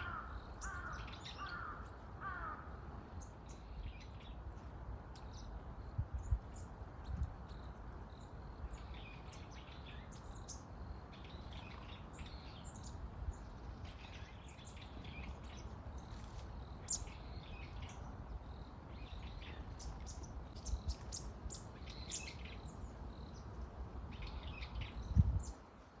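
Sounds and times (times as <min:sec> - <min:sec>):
small songbird chirping: 0:03.1 - 0:25.7.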